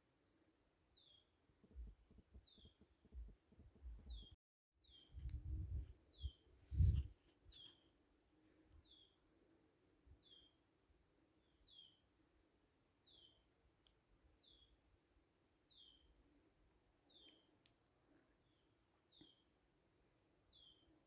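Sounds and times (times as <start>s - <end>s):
low rumbling thumps: 5.2s - 5.9s.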